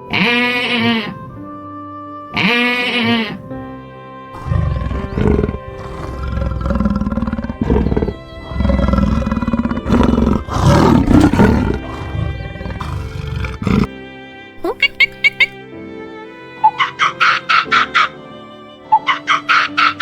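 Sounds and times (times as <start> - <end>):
sheep-like bleat: 0.0 - 1.4, 2.3 - 3.4
background music: 0.0 - 20.0
deep animal roars and growls: 4.4 - 13.9.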